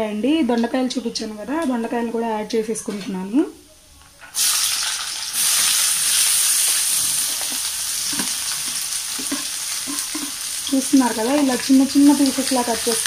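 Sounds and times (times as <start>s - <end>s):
vegetables sizzling in hot oil: 4.3s - 13.0s.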